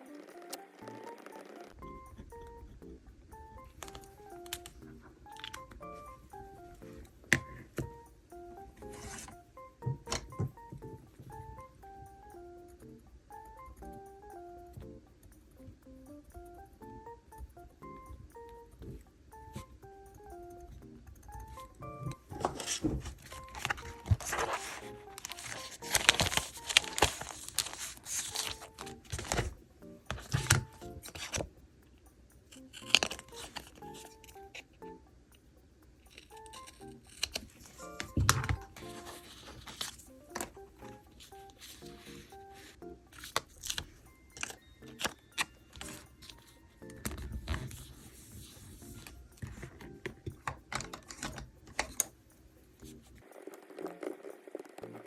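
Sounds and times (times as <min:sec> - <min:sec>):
soft background music: 0:00.0 - 0:55.0
stationery clicks and taps: 0:00.4 - 0:53.3
paper rustling and tearing: 0:22.3 - 0:31.5, 0:32.8 - 0:34.1, 0:36.2 - 0:46.0.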